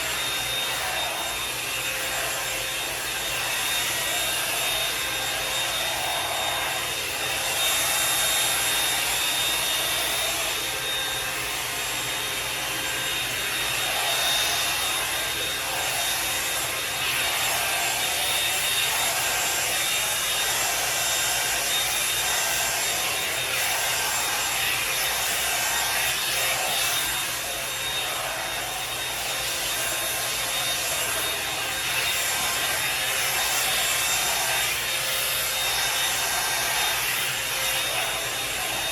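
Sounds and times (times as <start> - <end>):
hot-air brush dryer blowing: 0.0 - 38.9.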